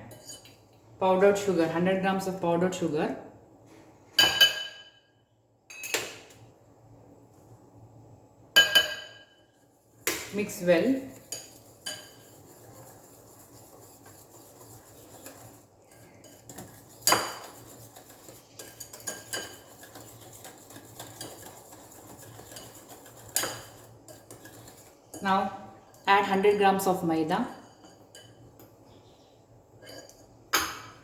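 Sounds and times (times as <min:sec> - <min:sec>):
utensil clinking on bowl: 0:08.6 - 0:09.5, 0:11.0 - 0:26.9
utensil mixing batter in bowl: 0:09.5 - 0:28.6.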